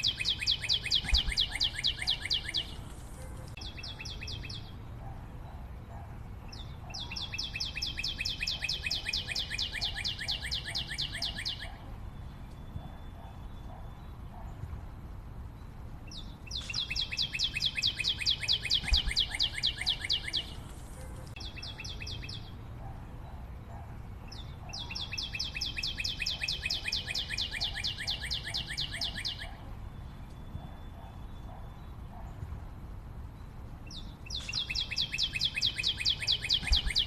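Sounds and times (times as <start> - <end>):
bird singing high repeated notes: 0.0 - 2.8, 6.5 - 14.5, 15.6 - 20.6, 24.3 - 32.0, 33.9 - 37.0.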